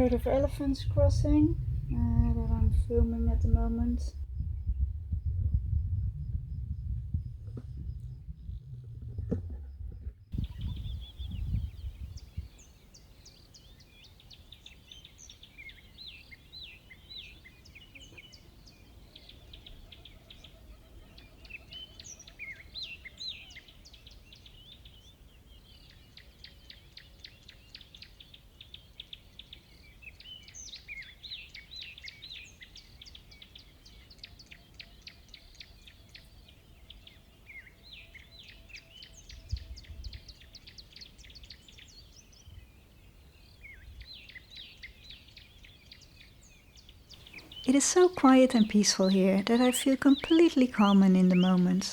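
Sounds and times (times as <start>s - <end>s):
birds chirping and trilling: 0.0s - 4.7s, 10.0s - 51.9s
brief low rumble: 0.8s - 3.5s, 4.1s - 11.7s.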